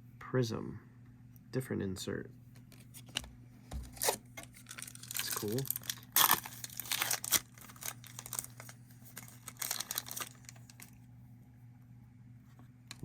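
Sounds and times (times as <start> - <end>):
foil wrapper crinkling: 3.0 - 11.0.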